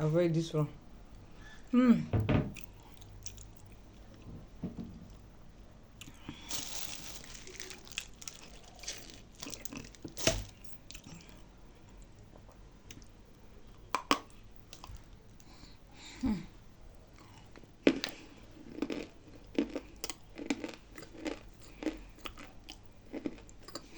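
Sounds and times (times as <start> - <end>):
clay being bitten and chewed: 6.0 - 11.4.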